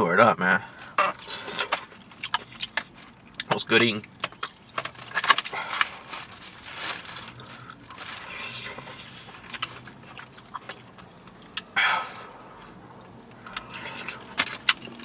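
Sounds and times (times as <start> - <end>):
rustling of food packaging: 0.7 - 15.0
chewing and biting: 1.1 - 15.0.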